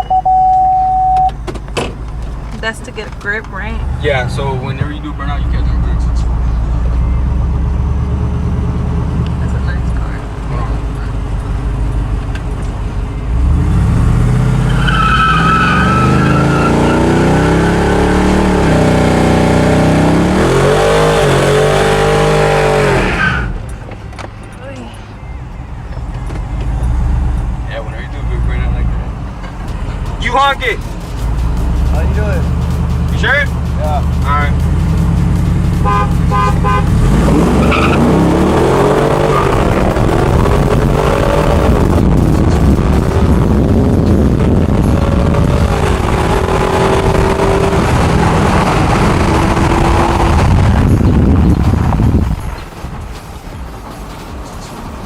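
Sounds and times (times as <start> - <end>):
engine at high revs: 13.2 - 23.5, 30.3 - 52.2
tyres squealing: 14.3 - 19.3, 20.4 - 35.2, 35.8 - 41.4.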